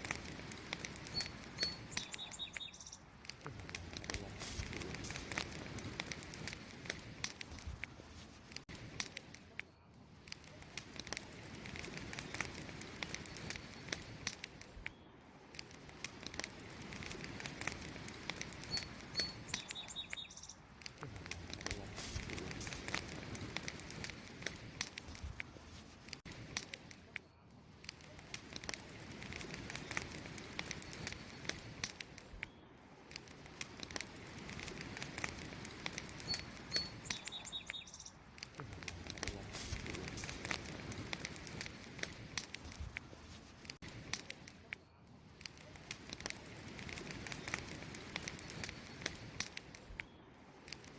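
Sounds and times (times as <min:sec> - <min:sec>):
wood fire crackling and popping: 0:00.0 - 0:50.9
small bird chirping: 0:01.0 - 0:03.1, 0:18.5 - 0:20.7, 0:36.0 - 0:38.3.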